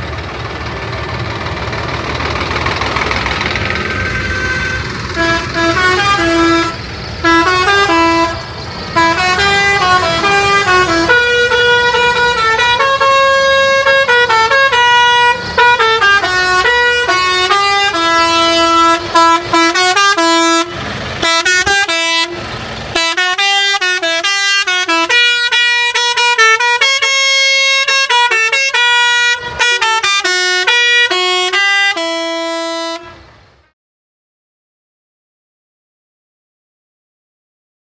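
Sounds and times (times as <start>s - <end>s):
engine running: 0.0s - 33.7s
musical vehicle horn playing tune: 3.8s - 33.8s.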